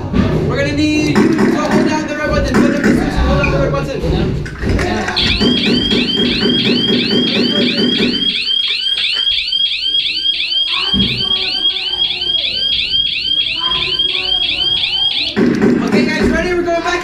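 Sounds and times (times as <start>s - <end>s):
warbling electronic alarm siren: 5.2s - 15.5s.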